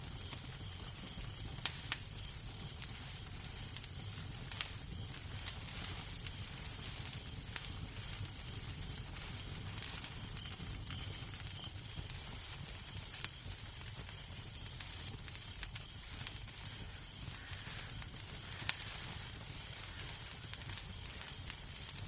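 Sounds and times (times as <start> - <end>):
wood fire crackling: 0.0 - 22.0
fire pops and snaps: 0.2 - 22.0.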